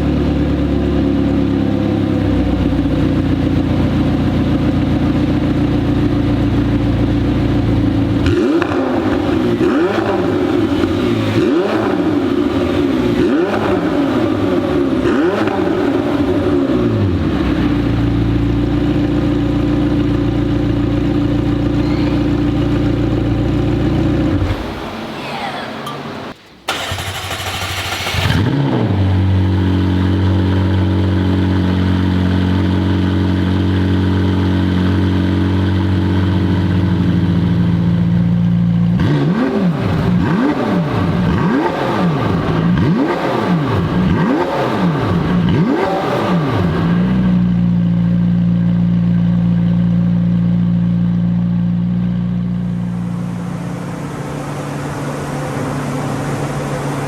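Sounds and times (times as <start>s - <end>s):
car engine idling: 0.0s - 39.0s, 40.0s - 57.0s
car engine revving: 0.0s - 49.4s.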